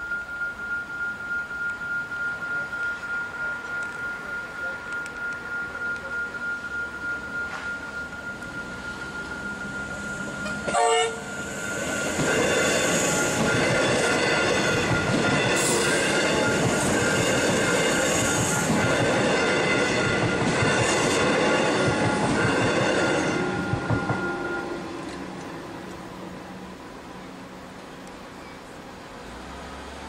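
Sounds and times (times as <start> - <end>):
level crossing bell ringing: 0.0 - 25.0
train high-pitched whine: 0.0 - 30.0
train wheels rumbling and clattering: 3.5 - 30.0
train horn blast: 10.4 - 11.6.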